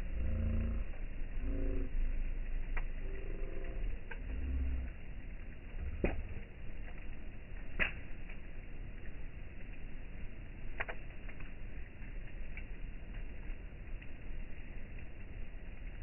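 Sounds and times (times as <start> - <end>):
low fire rumble: 0.0 - 16.0
wood cracking pops: 5.8 - 8.4, 10.7 - 11.6.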